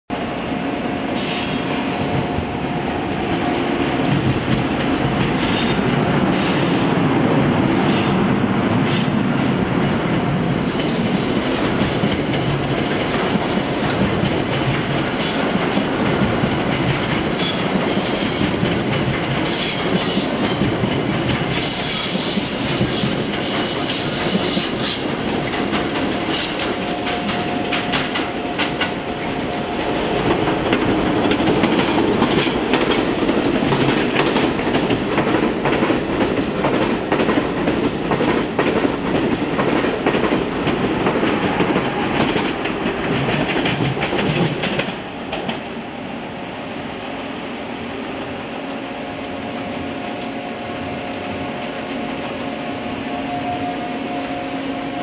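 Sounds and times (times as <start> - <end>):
train wheels rumbling on rail: 0.1 - 55.0
clickety-clack over rail joints: 1.2 - 45.7.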